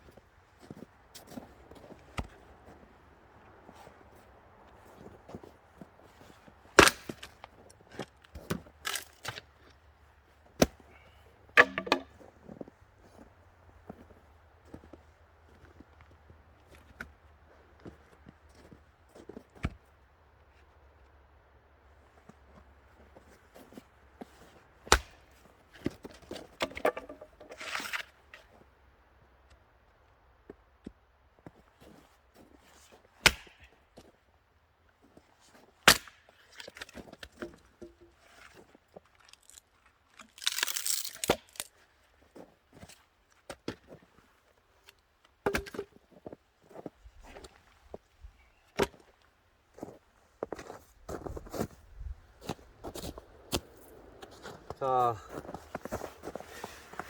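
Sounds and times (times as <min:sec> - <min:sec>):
axe chopping wood: 0:06.8 - 0:07.4, 0:10.6 - 0:10.9, 0:11.6 - 0:12.2, 0:24.9 - 0:25.3, 0:26.6 - 0:28.0, 0:33.2 - 0:33.7, 0:35.9 - 0:36.3, 0:45.5 - 0:46.0
wood pieces knocking: 0:11.6 - 0:12.2, 0:26.6 - 0:28.0, 0:45.5 - 0:45.9
rustle of twigs: 0:38.2 - 0:42.2.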